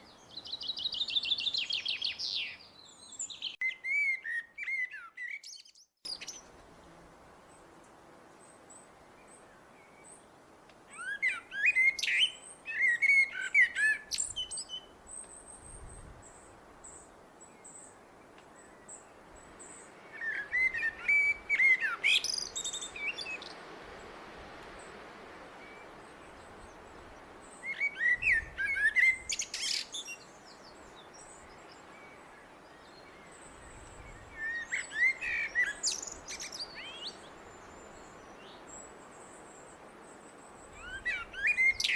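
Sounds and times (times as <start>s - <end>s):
blackbird singing: 0.0s - 6.4s, 10.9s - 15.9s, 18.6s - 23.6s, 27.5s - 38.8s, 40.7s - 41.9s.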